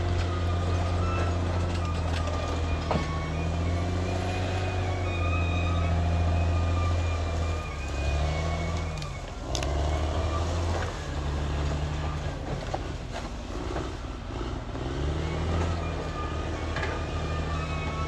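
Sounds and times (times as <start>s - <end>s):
bulldozer diesel engine under load: 0.0s - 18.0s.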